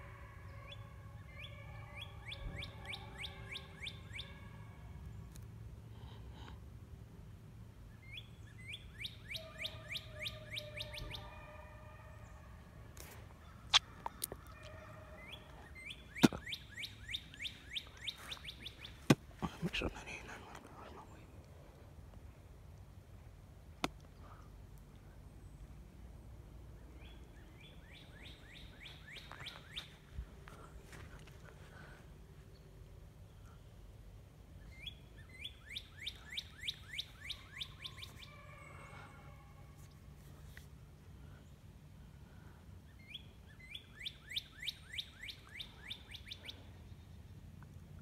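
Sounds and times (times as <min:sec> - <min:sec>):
songbird singing down-slurred notes: 0:00.7 - 0:04.4, 0:07.9 - 0:11.4, 0:15.2 - 0:19.1, 0:26.8 - 0:30.0, 0:34.6 - 0:38.3, 0:42.8 - 0:48.0.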